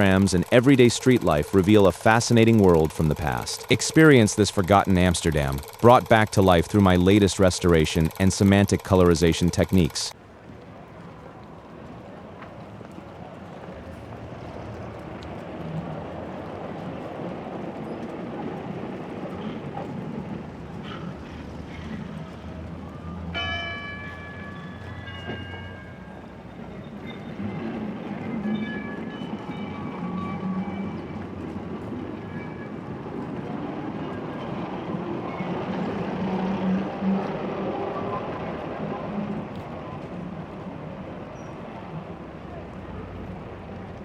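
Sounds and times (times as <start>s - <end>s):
tram rumbling on rails: 0.0s - 44.0s.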